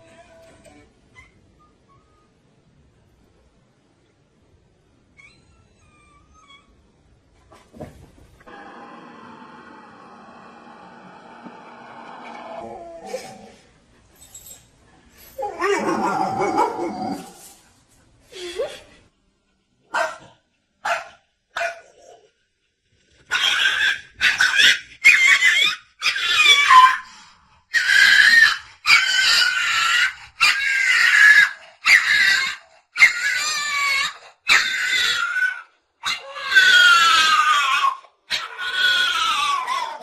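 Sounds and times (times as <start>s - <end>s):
dog whining: 5.1s - 6.9s, 11.4s - 14.7s, 27.8s - 40.0s
dog yelping: 23.3s - 27.0s, 27.7s - 40.0s.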